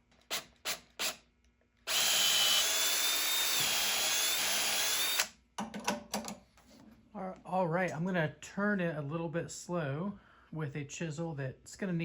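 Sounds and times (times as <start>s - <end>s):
power tool cutting wood with whine: 1.9s - 5.3s.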